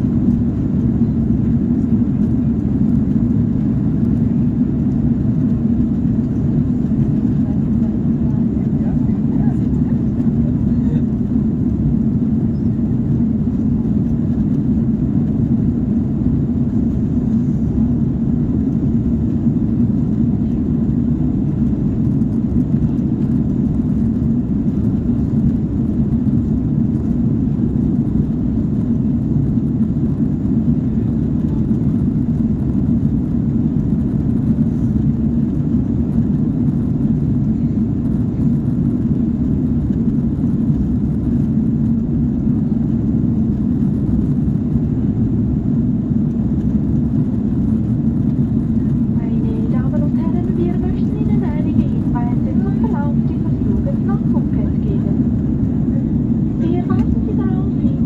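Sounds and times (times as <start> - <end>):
jet engines droning: 0.0 - 58.0.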